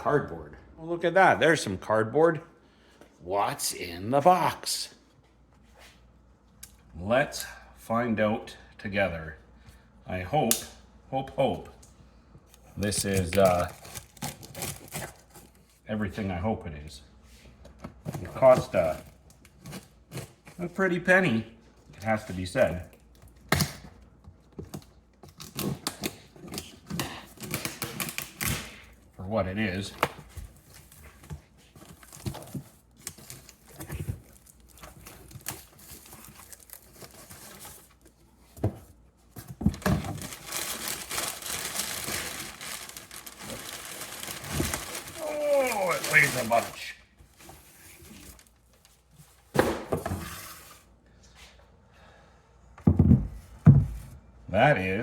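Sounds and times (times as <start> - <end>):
shuffling while unpacking: 30.1 - 49.5.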